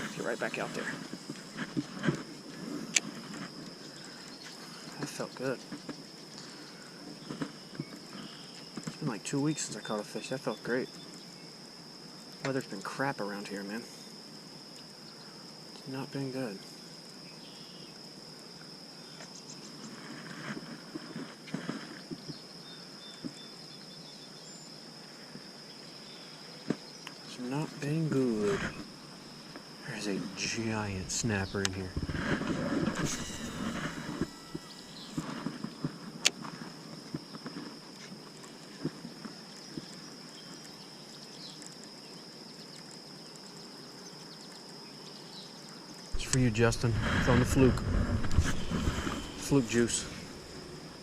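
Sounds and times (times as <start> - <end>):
rustles: 0.0 - 9.2, 18.6 - 51.0
insects trilling: 0.0 - 51.0
outdoor background noise: 0.0 - 51.0
high-pitched whine: 29.8 - 36.4, 46.2 - 51.0.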